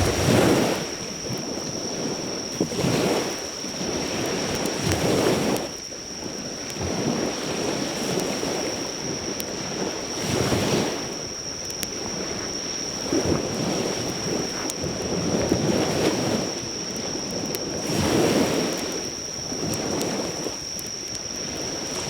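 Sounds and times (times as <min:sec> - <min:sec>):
campfire crackles: 0:00.0 - 0:22.0
insect trill: 0:00.0 - 0:22.0
sea waves washing onto shore: 0:00.0 - 0:22.0.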